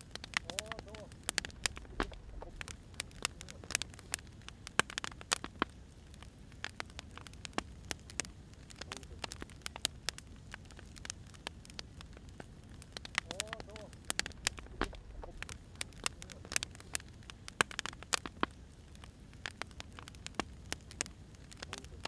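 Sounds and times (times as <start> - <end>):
low steady rumble: 0.0 - 4.8, 9.4 - 17.5
wood fire crackling and popping: 0.0 - 22.0.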